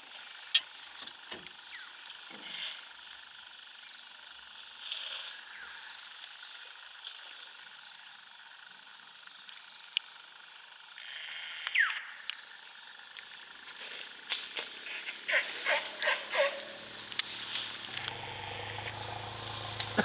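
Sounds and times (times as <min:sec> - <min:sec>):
chorus of forest animals: 0:00.0 - 0:20.0
falling animal call: 0:14.8 - 0:16.9.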